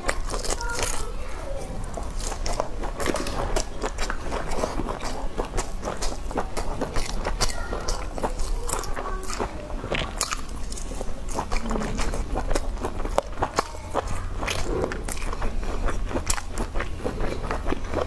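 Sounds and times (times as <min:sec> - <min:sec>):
person chewing meat: 0:00.0 - 0:18.0
wet mouth clicks: 0:01.8 - 0:18.0.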